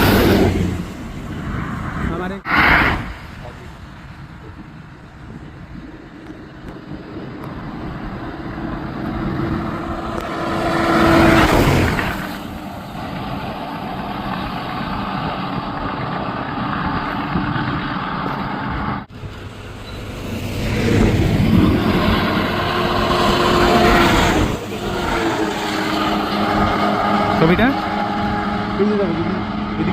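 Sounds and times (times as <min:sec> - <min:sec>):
coaches passing on a road: 0:00.0 - 0:29.9.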